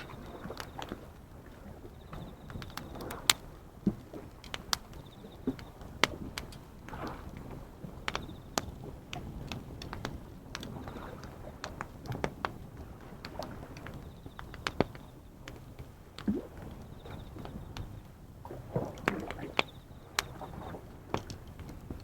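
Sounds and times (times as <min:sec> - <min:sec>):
faint insect trill: 0:00.0 - 0:03.3, 0:05.0 - 0:05.8, 0:08.2 - 0:08.6, 0:14.0 - 0:15.3, 0:16.8 - 0:18.0, 0:19.3 - 0:20.8
ocean waves: 0:00.0 - 0:15.6, 0:18.4 - 0:22.0
campfire crackling and popping: 0:00.0 - 0:22.0.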